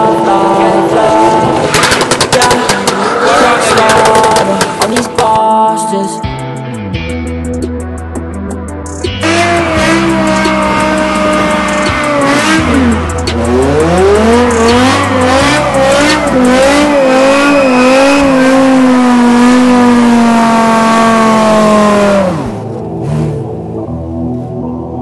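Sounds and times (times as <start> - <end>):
performance car wavering tone: 9.0 - 24.7.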